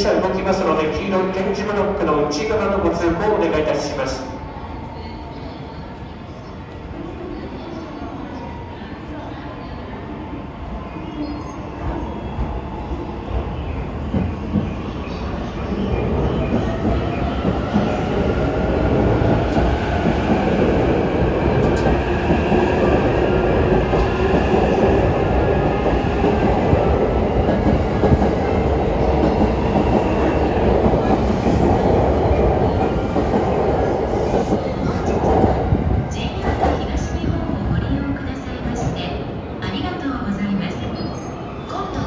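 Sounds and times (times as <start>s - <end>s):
train wheels rumbling: 11.8s - 40.4s.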